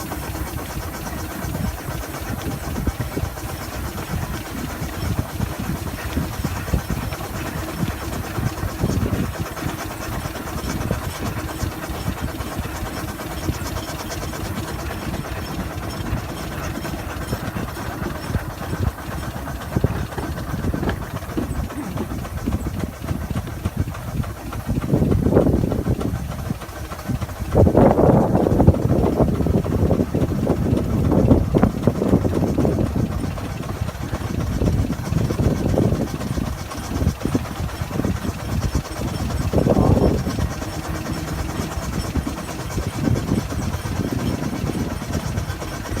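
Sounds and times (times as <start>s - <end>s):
steam hiss: 0.0s - 24.8s
steam engine rumble: 0.0s - 46.0s.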